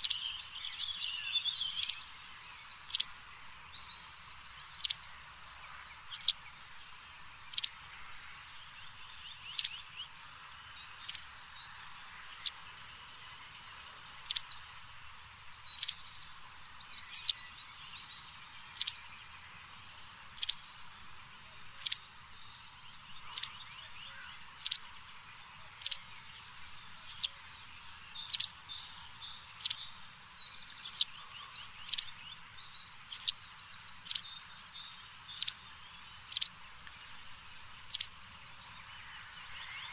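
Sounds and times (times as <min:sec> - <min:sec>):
bird chirping: 0:00.0 - 0:39.9
bird trills: 0:01.3 - 0:02.0, 0:04.2 - 0:05.1, 0:06.1 - 0:06.4, 0:08.8 - 0:10.3, 0:13.8 - 0:14.7, 0:20.4 - 0:20.6, 0:21.7 - 0:22.1, 0:27.1 - 0:27.3, 0:28.2 - 0:30.0, 0:30.8 - 0:34.3, 0:35.2 - 0:35.6, 0:36.2 - 0:36.6, 0:37.8 - 0:38.2.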